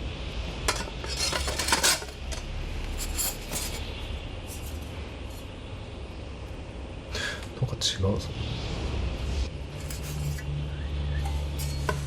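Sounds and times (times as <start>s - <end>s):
steady low hum: 0.0s - 12.0s
metal parts clinking: 0.7s - 3.8s.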